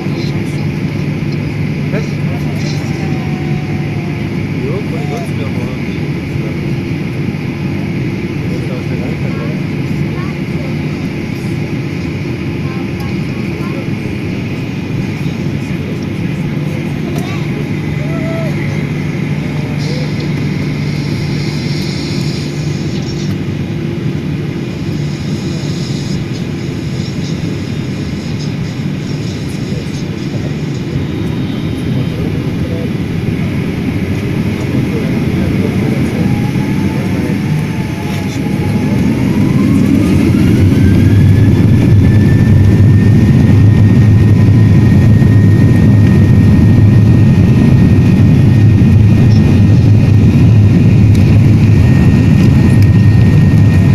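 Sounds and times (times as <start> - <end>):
jet engines rumbling in cabin: 0.0 - 53.9
jet engines spooling up whine: 0.0 - 53.9.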